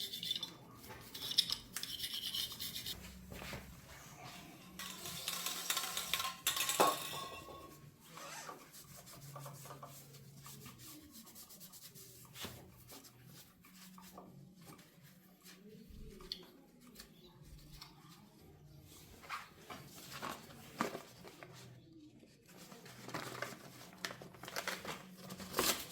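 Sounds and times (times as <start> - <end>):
rubbing and scraping metal: 0.0 - 3.0
metal parts clicking: 1.1 - 3.0.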